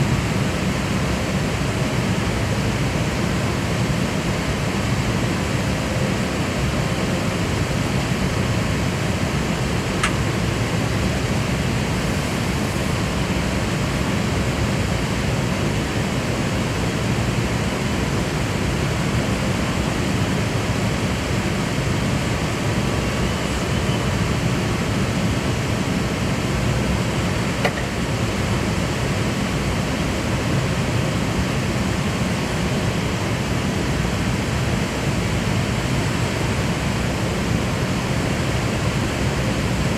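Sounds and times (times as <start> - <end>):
airplane rushing noise in flight: 0.0 - 39.9.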